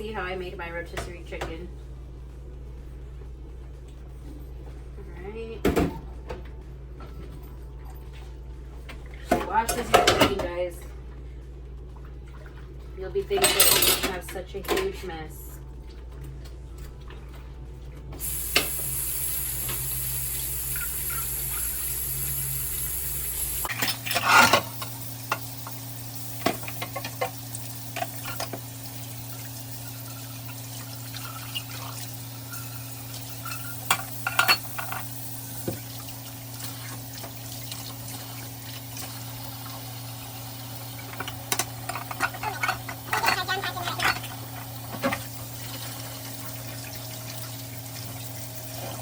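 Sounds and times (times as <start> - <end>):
dishes and utensils clattering: 9.2 - 10.6, 13.3 - 15.1, 33.4 - 35.1, 41.1 - 45.3
tap running: 18.1 - 32.0.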